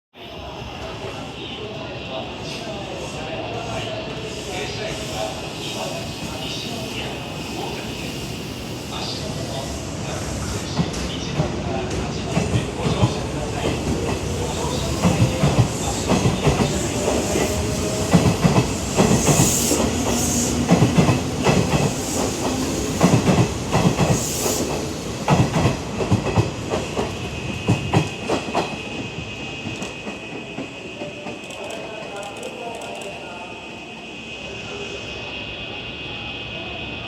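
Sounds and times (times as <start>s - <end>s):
train hiss bursts: 2.4s - 31.8s.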